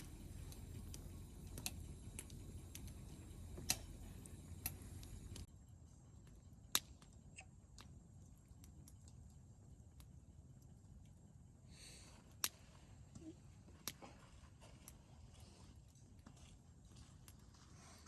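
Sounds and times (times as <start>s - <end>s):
firewood crackling: 0.0s - 5.5s
low background rumble: 0.0s - 5.8s.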